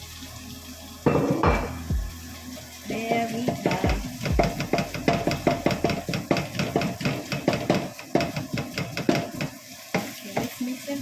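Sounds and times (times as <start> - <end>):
utensil scraping a frying pan: 2.8 - 10.6.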